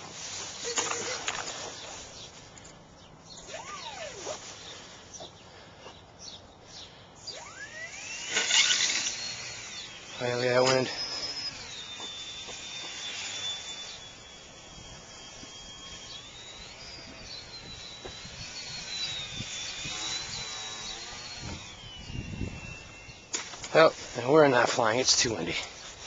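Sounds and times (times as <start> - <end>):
model helicopter motor whining: 0.0 - 5.0, 7.2 - 26.0
wind buffeting microphone: 21.4 - 23.2.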